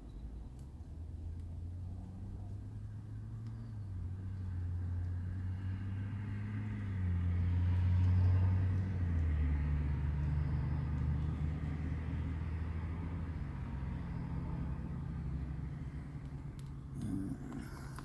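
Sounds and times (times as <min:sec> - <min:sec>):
car engine humming: 0:12.7 - 0:18.0.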